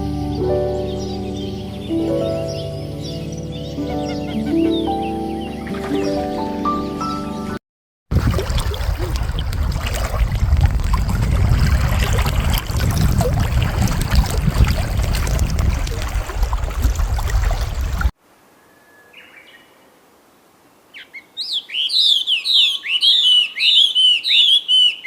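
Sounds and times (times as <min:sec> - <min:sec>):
rushing water: 0:08.1 - 0:18.2.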